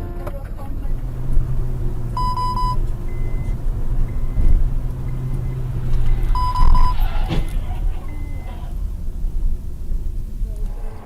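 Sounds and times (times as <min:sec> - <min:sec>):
engine and road drone: 0:00.0 - 0:11.0
short electronic beeps: 0:02.2 - 0:07.0.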